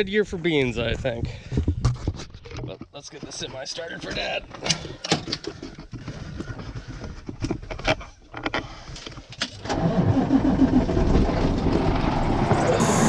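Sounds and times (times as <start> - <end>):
diesel truck engine running: 12.7 - 13.0.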